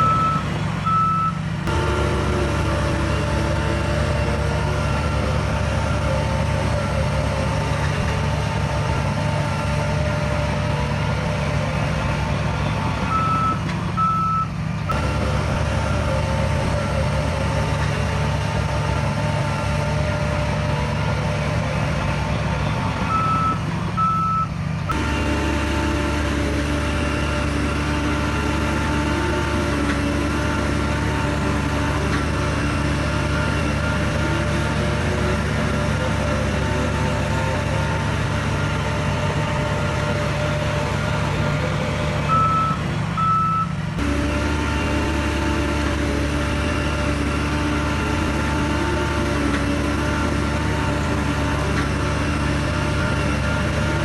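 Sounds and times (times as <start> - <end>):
reversing alarm beeping: 0.0 - 1.4, 13.1 - 15.0, 23.1 - 24.5, 42.3 - 43.7
diesel engine of heavy machine: 0.0 - 54.0.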